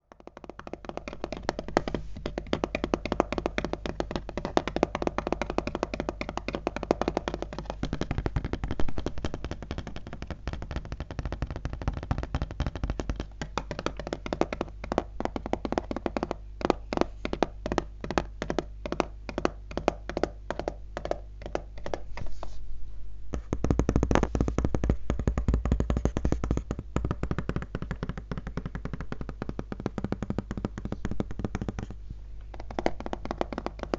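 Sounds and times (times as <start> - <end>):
fingernails tapping on laptop: 0.0 - 22.3, 23.3 - 33.9.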